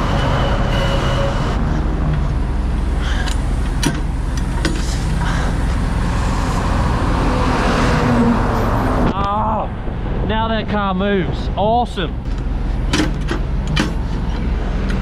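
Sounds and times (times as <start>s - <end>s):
passing road traffic: 0.0s - 15.0s
truck diesel engine idling: 1.5s - 7.3s.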